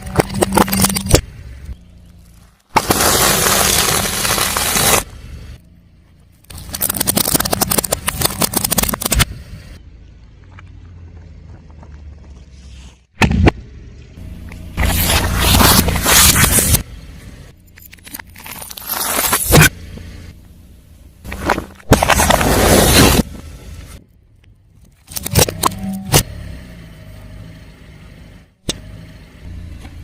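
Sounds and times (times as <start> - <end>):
tyre crushing crunchy objects: 2.0 - 5.1, 14.7 - 16.9, 21.2 - 23.4
sharp crack: 2.7 - 5.1.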